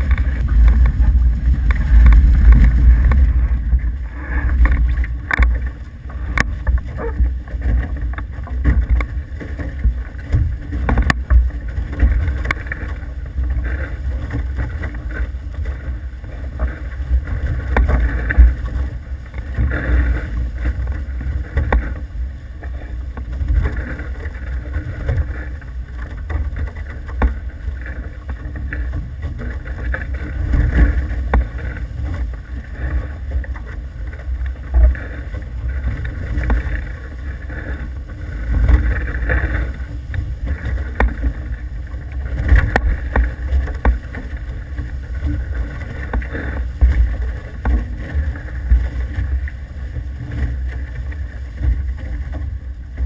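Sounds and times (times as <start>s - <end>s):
water rushing past boat hulls: 0.0s - 53.0s
wind buffeting the microphone: 0.0s - 53.0s.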